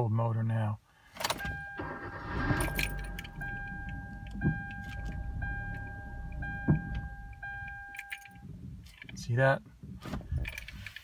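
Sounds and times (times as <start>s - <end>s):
dashboard warning chime: 1.4s - 8.5s
sharp thump: 6.5s - 7.2s.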